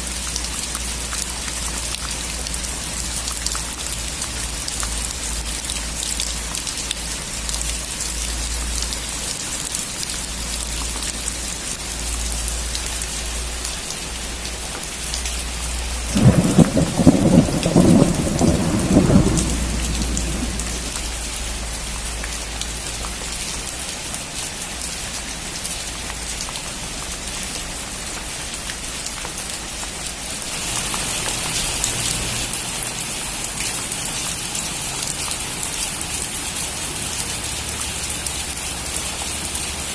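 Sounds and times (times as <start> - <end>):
steady rain falling: 0.0 - 39.9
thunder rumbling: 16.0 - 21.2.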